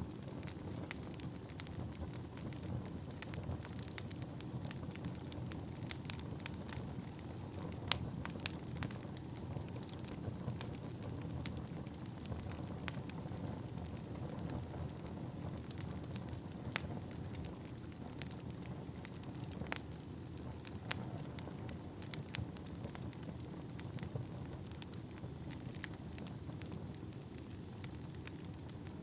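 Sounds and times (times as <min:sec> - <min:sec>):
low rumble of flames: 0:00.0 - 0:29.0
wood fire crackles and pops: 0:00.0 - 0:29.0.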